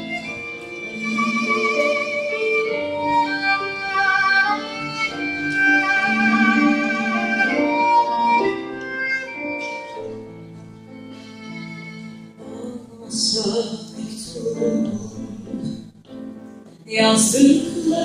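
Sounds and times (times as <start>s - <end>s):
live band playing: 0.0s - 12.0s
violin with vibrato: 0.0s - 13.1s.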